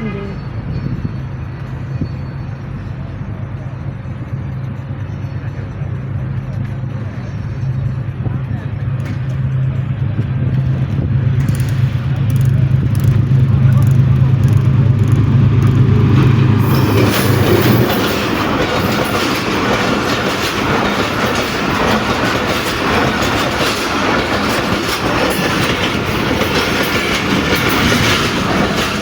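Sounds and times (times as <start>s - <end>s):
locomotive engine drone: 0.0s - 29.0s
train coaches rumbling: 0.0s - 29.0s
wheels clacking over rail joints: 8.8s - 29.0s.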